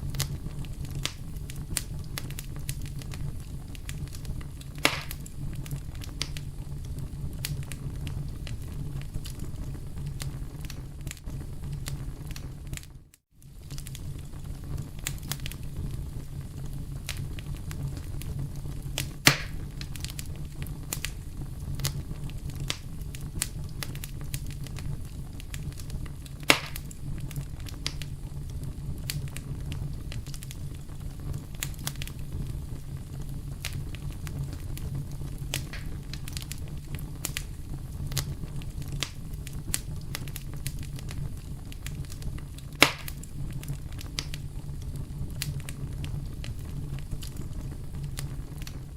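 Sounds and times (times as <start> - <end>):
burning wood popping: 0.0 - 48.9
campfire crackling: 0.0 - 48.9.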